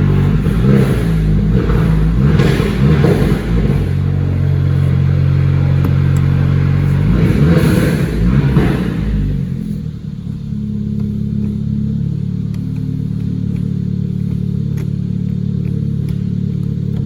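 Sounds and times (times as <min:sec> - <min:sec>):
car engine idling: 0:00.0 - 0:17.0
faint clicks: 0:12.4 - 0:17.0.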